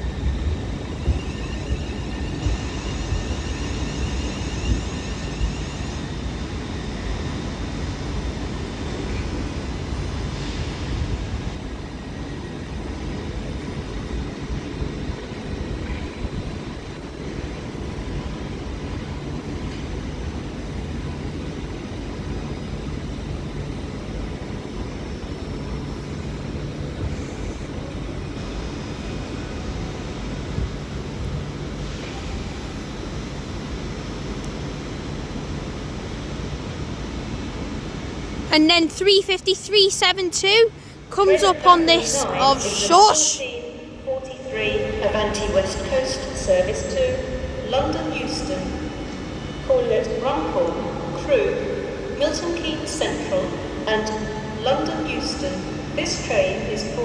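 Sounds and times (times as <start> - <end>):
electric train rumbling: 0.0 - 38.6
high chattering: 38.5 - 43.4.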